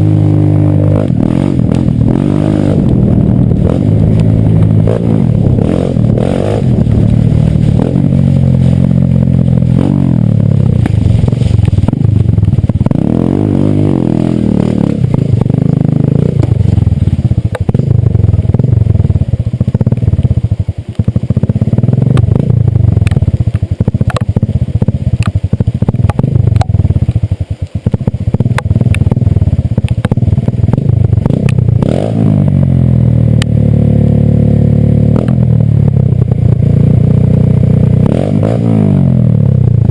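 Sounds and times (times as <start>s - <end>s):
small motorcycle engine revving: 0.0s - 39.9s
bike rattling over rough ground: 0.6s - 32.0s.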